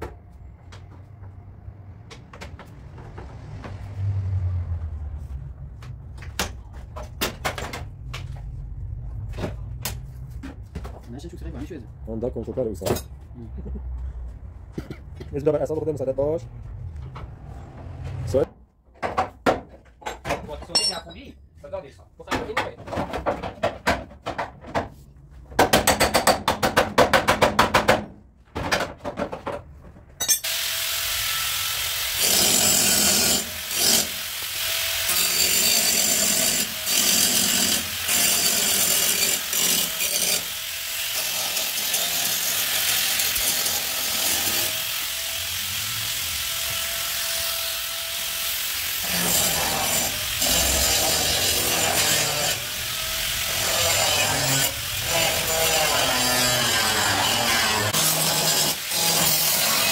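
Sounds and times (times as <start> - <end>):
power tool on car bodywork: 30.4 - 59.9.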